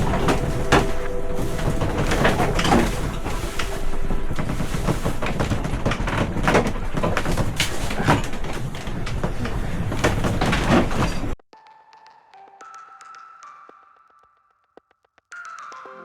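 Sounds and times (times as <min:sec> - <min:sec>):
rushing water: 0:00.0 - 0:08.2
hull creaks and knocks: 0:00.0 - 0:11.4.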